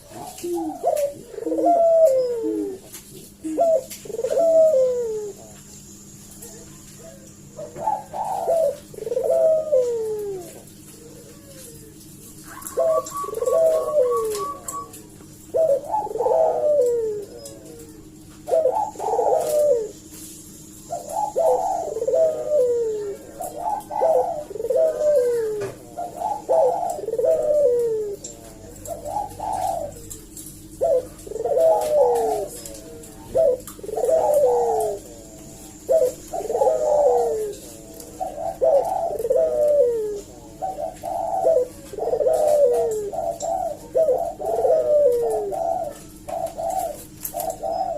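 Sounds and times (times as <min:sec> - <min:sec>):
dove cooing: 0:00.0 - 0:47.9.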